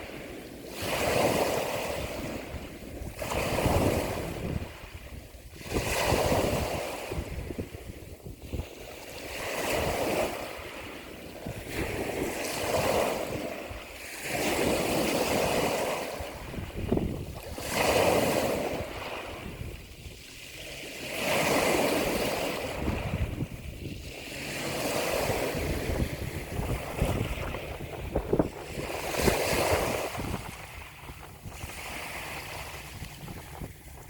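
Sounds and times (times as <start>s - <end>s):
ocean waves breaking: 0.0s - 34.0s.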